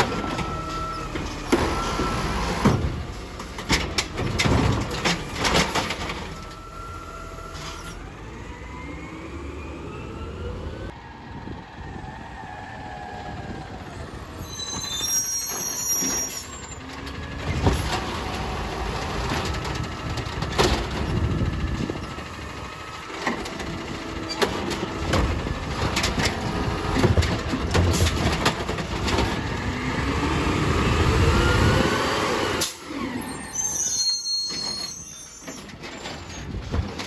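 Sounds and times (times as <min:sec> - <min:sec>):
high squeals: 0:14.3 - 0:16.9, 0:33.0 - 0:36.5.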